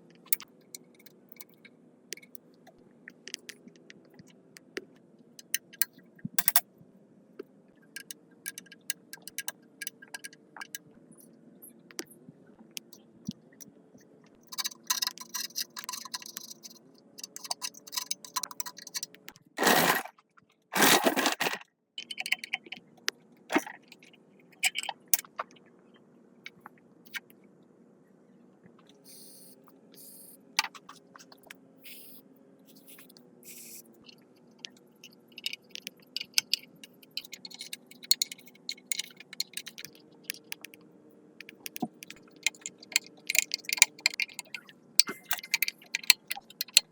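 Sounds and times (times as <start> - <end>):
metal parts clinking and scraping: 6.4 - 6.6, 14.4 - 20.1, 20.8 - 22.4, 42.1 - 46.9.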